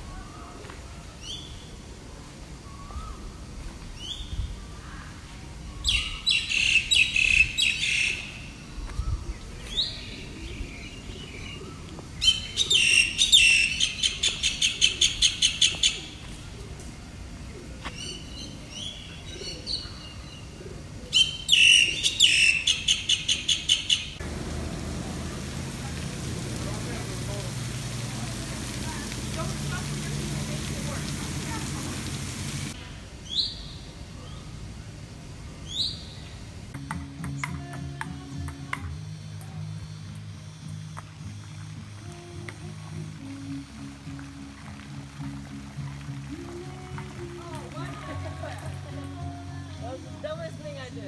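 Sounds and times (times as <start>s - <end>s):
birds singing rising calls: 2.6s - 16.8s, 17.4s - 27.8s, 35.4s - 36.5s.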